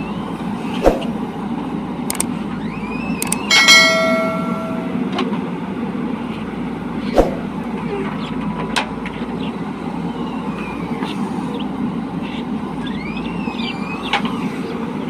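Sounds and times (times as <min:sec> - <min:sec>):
sharp metallic knock: 0:03.2 - 0:05.1.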